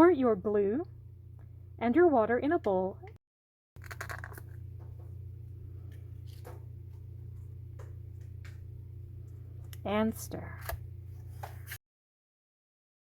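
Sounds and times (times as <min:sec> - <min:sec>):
low hum: 0:00.0 - 0:03.2, 0:03.8 - 0:11.8.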